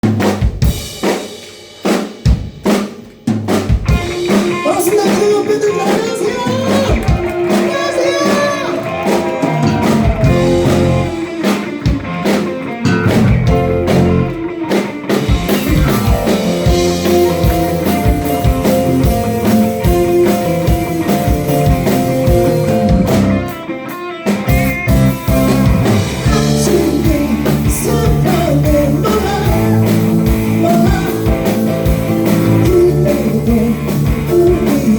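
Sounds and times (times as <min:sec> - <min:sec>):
drum hits: 0:00.0 - 0:23.5, 0:24.4 - 0:32.8
live rock band playing: 0:00.0 - 0:34.9
person singing: 0:04.5 - 0:11.7, 0:15.2 - 0:22.9, 0:26.2 - 0:31.7, 0:32.3 - 0:34.9.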